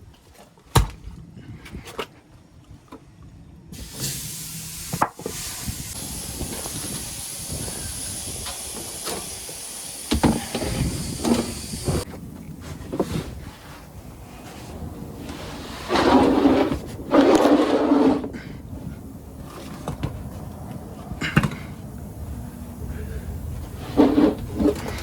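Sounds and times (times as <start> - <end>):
pressurised air hissing: 3.8 - 12.1.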